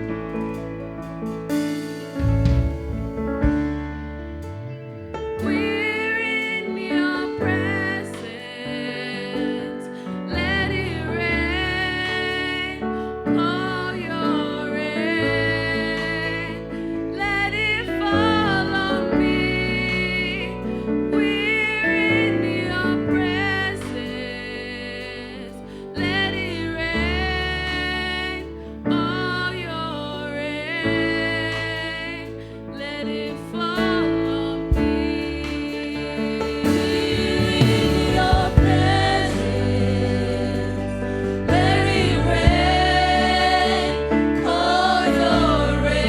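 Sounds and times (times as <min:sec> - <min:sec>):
worship band playing: 0:00.0 - 0:46.0
woman singing: 0:05.4 - 0:46.0.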